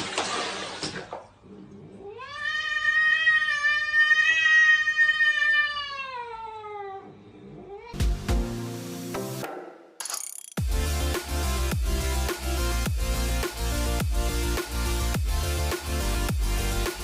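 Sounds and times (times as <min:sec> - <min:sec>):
cat yowling: 0:02.0 - 0:08.0.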